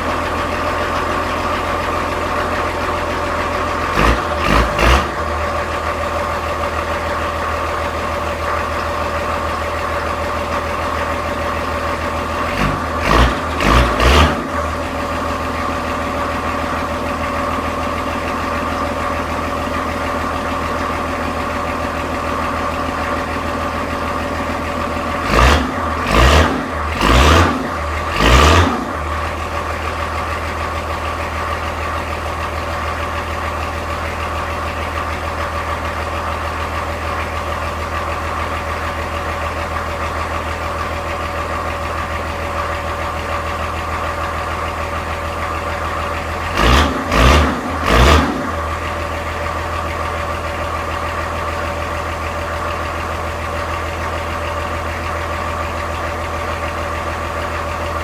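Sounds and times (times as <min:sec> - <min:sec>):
diesel engine idling: 0:00.0 - 0:58.0
engine revving bursts: 0:03.9 - 0:05.5, 0:12.5 - 0:15.3, 0:25.2 - 0:29.3, 0:46.5 - 0:48.8.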